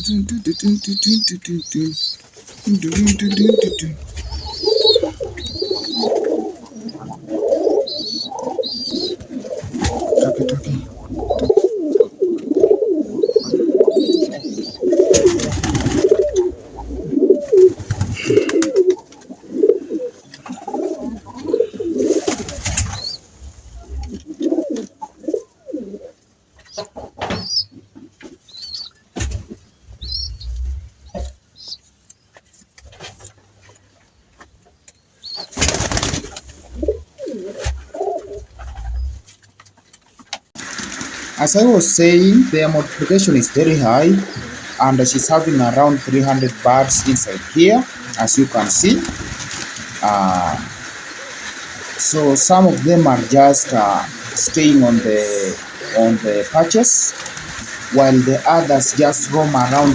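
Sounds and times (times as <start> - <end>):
thin high chirps: 0.0 - 5.9
doves cooing: 0.0 - 31.7, 35.2 - 39.4, 40.6 - 59.9.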